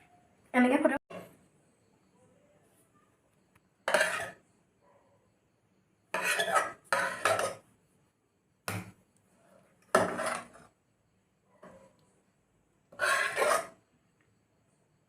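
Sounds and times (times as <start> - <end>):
dishes and cutlery clattering: 6.2 - 7.6.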